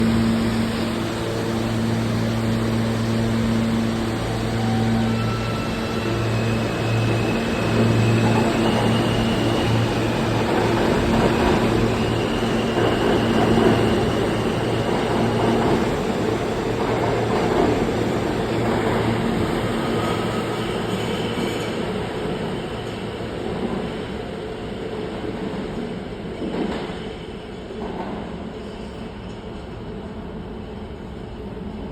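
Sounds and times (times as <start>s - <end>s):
train cars rumbling: 0.0s - 24.0s
train motors humming and whining: 0.0s - 31.9s.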